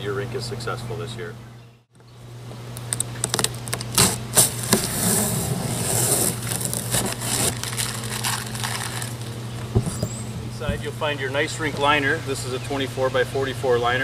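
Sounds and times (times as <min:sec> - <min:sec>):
steady low hum: 0:00.0 - 0:14.0
plastic packaging crinkling: 0:02.9 - 0:05.0, 0:05.6 - 0:09.7
cardboard box scraping and knocks: 0:04.0 - 0:07.8.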